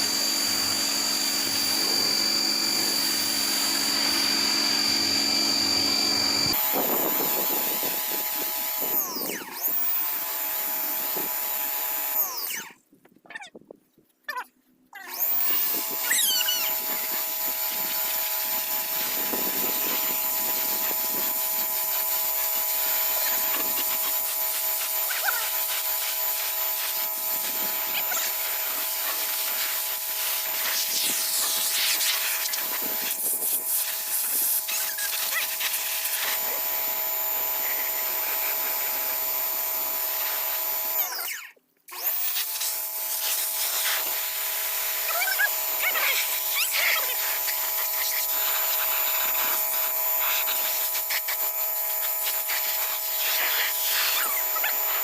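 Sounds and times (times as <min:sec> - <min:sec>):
pressure washer spraying: 0:15.4 - 0:40.8, 0:42.1 - 0:55.0.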